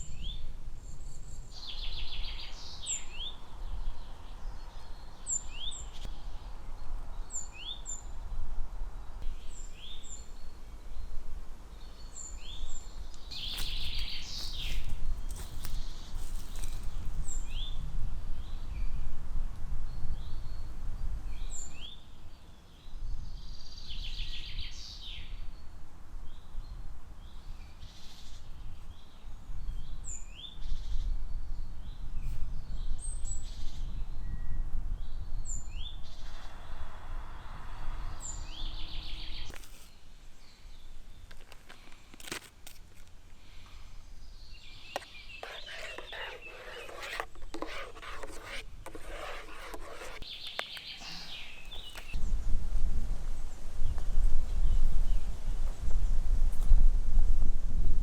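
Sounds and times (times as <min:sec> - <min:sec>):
birds singing: 0:00.0 - 0:08.4, 0:09.1 - 0:19.0, 0:26.3 - 0:42.0, 0:43.5 - 0:52.5.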